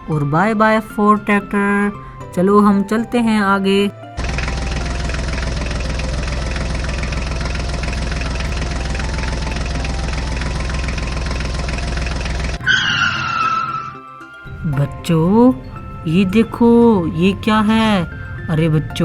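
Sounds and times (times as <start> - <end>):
tractor engine running: 2.9 - 13.9, 14.5 - 19.0
high whistle-like tone: 10.2 - 14.5.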